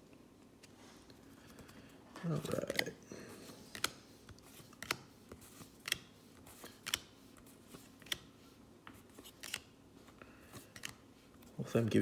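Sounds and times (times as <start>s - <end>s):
cards snapping and flicking: 3.7s - 5.1s, 5.8s - 7.1s, 9.2s - 9.7s.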